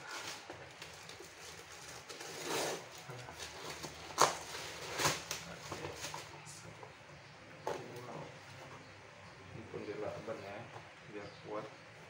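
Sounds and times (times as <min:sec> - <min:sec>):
packaging rustling and crinkling: 0:00.0 - 0:06.4.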